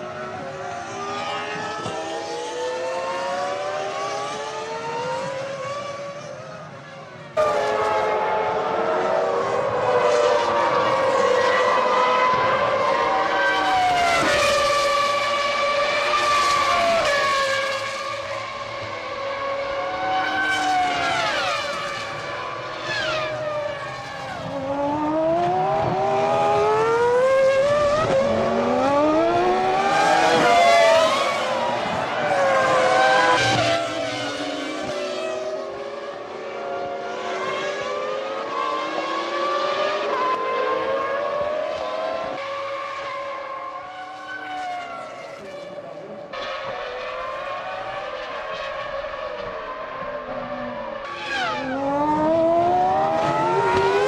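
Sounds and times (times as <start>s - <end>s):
racing car engines passing: 0.0s - 54.0s.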